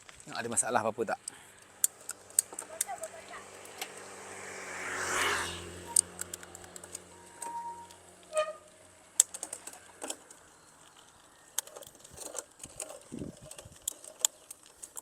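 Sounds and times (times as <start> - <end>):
bicycle gear shifter clicks: 5.9 - 8.0.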